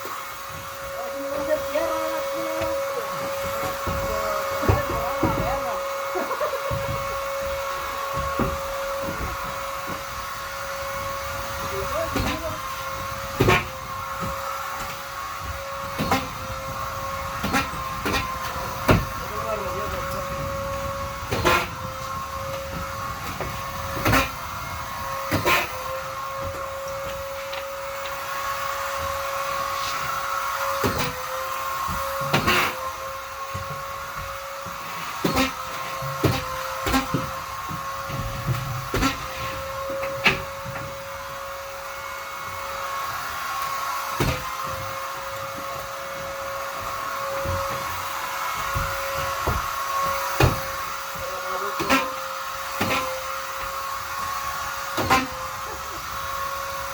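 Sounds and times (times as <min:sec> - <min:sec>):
vacuum cleaner whining: 0:00.0 - 0:56.9.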